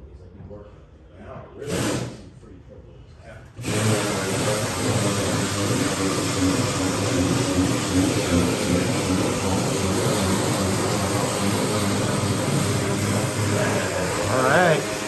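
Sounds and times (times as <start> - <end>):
steady mechanical engine drone: 3.6 - 15.0.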